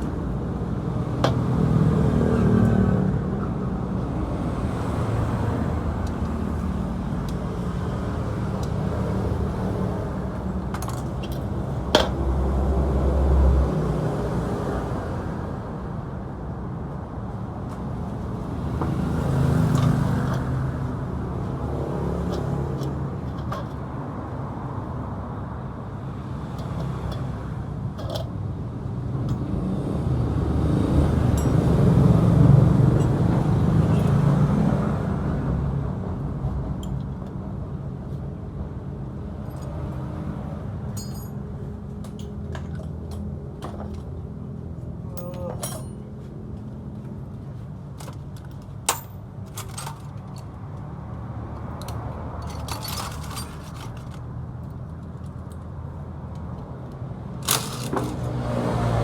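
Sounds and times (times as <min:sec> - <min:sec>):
light metallic clinks: 0:40.9 - 0:41.4, 0:45.1 - 0:46.0.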